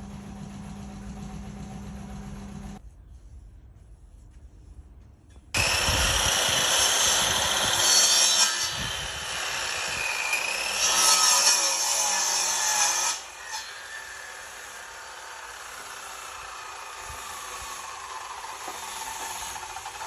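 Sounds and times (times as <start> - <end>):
power tool working wood: 5.6 - 20.0.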